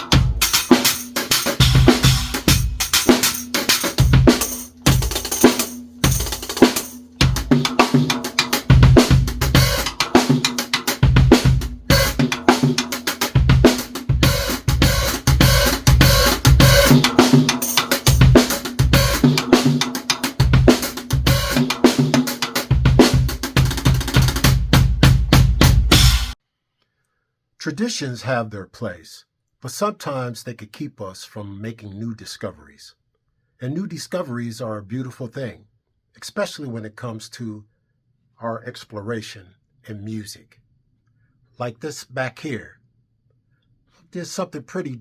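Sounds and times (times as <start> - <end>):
drum kit fast groove: 0.0 - 26.4.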